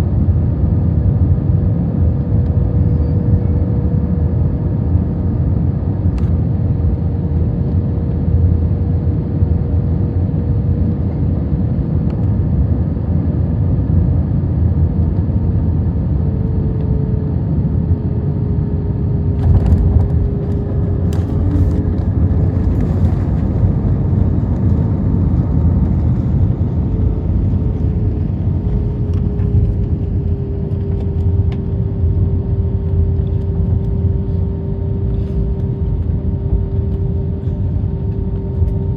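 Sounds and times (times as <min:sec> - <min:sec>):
aircraft cabin engine rumble: 0:00.0 - 0:38.9
faint whine: 0:15.1 - 0:38.9.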